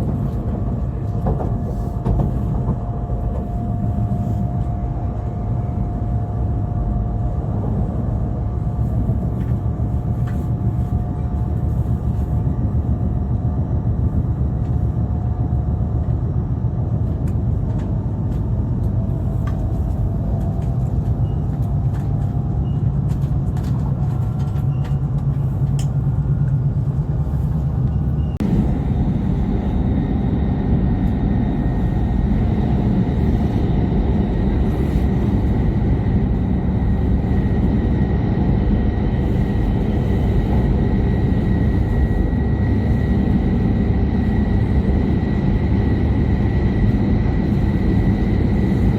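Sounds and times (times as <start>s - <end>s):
train running rumble: 0.0s - 48.9s
high whine: 28.4s - 48.9s.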